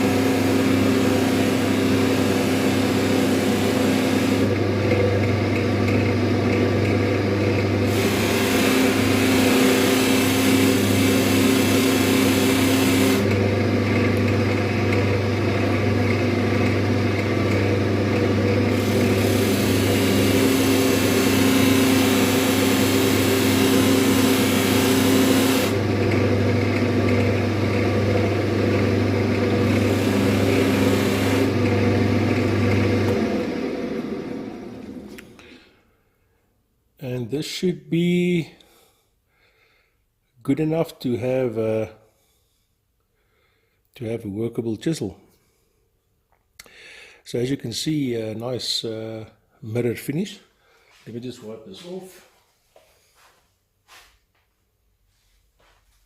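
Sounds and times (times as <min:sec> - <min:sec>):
buffing wheel motor hum: 0:00.0 - 0:35.6.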